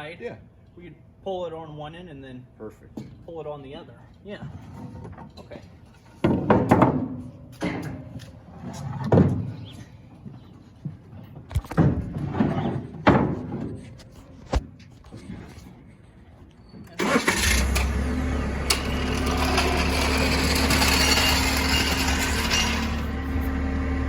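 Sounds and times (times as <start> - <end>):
sharp knocks and clanks: 4.5 - 8.4, 10.8 - 14.7, 18.6 - 23.4
vehicle engine starting and idling: 17.0 - 24.0.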